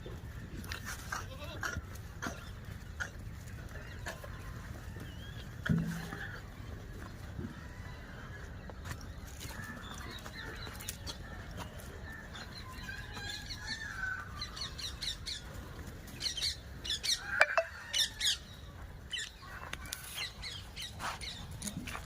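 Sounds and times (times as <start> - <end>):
birds chirping and squawking: 12.0 - 21.6.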